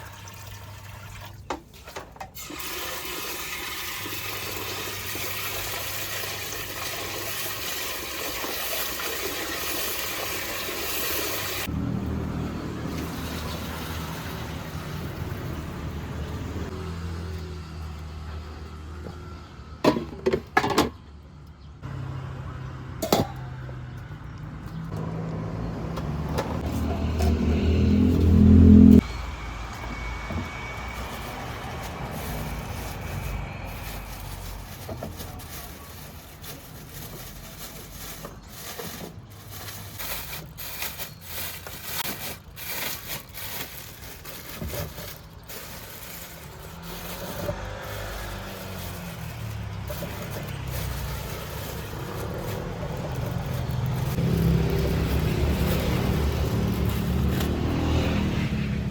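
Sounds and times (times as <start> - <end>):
street noise: 9.7 - 58.9
engine hum: 11.6 - 58.9
vehicle engine running: 23.6 - 58.9.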